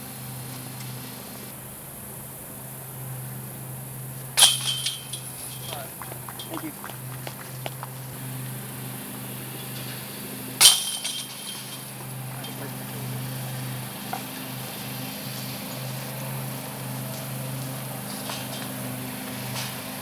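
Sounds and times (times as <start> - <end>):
steady low hum: 0.0 - 20.0
disc striking basket chains: 4.1 - 8.2, 8.8 - 14.6, 17.2 - 20.0.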